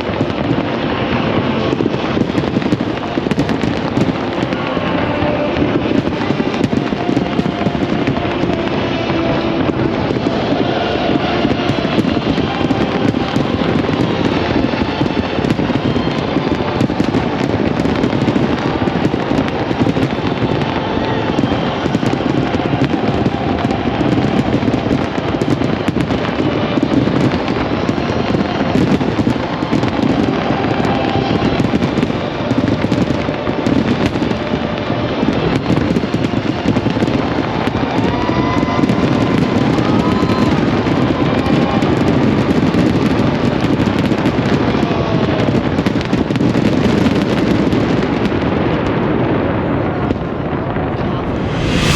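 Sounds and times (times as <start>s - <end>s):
fireworks crackling: 0.0s - 51.9s
faint gliding tones: 50.7s - 51.9s.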